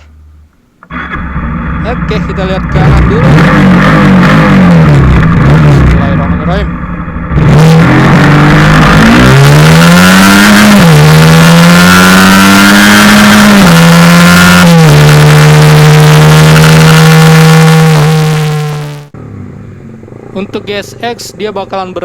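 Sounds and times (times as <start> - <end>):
motorcycle engine accelerating: 0.0 - 20.4.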